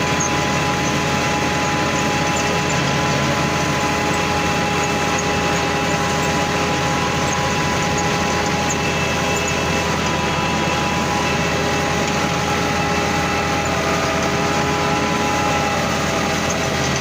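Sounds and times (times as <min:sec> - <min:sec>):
engine running with whine: 0:00.0 - 0:17.0.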